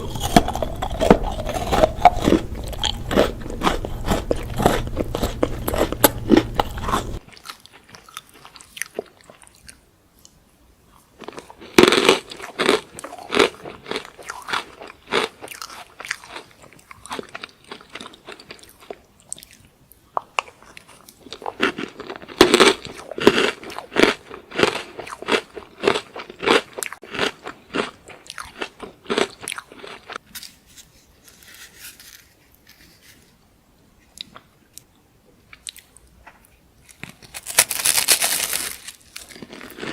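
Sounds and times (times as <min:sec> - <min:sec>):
crunchy snack being chewed: 0:00.0 - 0:30.6, 0:35.5 - 0:39.9.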